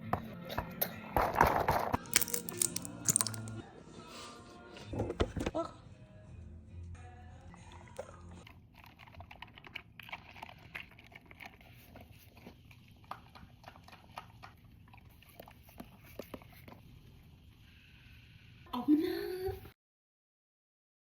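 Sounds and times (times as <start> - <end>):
pet chewing with crunching clicks: 8.0 - 16.0.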